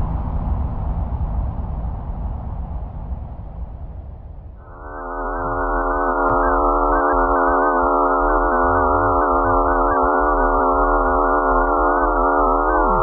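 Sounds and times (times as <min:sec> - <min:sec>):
eerie electronic drone: 0:04.6 - 0:13.0.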